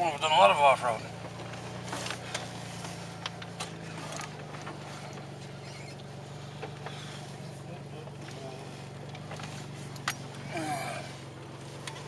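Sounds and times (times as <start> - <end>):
pickup truck engine hum: 0.0 - 12.0
truck rattling clicks and knocks: 9.0 - 10.5.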